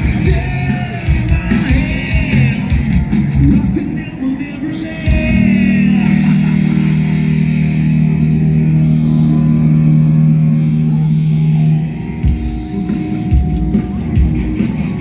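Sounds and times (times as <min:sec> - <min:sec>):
live rock band playing: 0:00.0 - 0:15.0
held guitar chord: 0:05.0 - 0:15.0.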